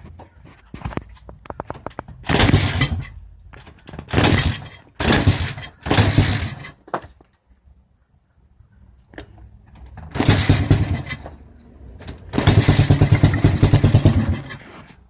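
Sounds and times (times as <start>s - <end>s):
engine turning over: 2.2s - 3.1s, 4.1s - 6.8s, 10.0s - 14.7s.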